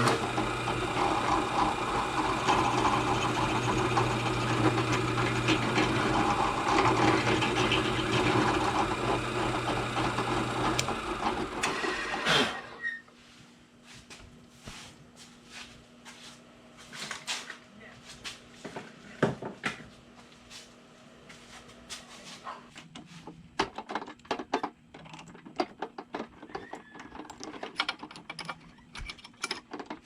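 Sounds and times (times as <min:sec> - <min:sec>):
machine motor humming: 0:00.0 - 0:12.8.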